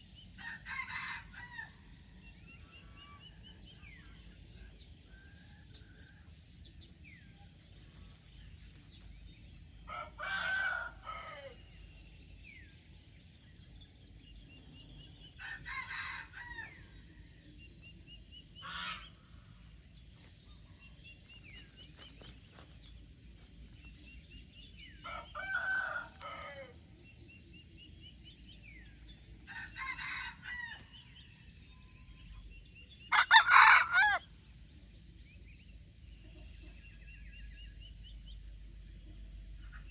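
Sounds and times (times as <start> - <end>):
high insect drone: 0.0 - 39.9
rooster crowing: 0.4 - 1.9, 9.9 - 11.6, 15.4 - 16.9, 25.0 - 26.8, 29.5 - 31.2, 33.1 - 34.3
small birds chirping: 20.2 - 25.2.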